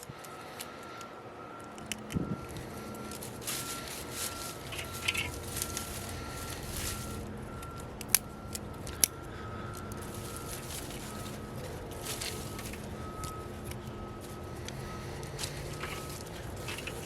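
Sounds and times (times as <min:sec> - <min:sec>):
log fire crackling: 0:00.1 - 0:17.0.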